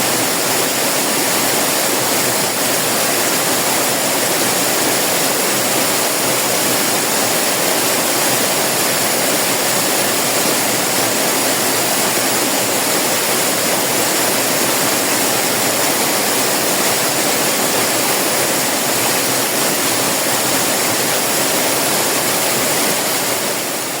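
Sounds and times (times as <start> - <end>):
waterfall pouring and splashing: 0.0 - 24.0.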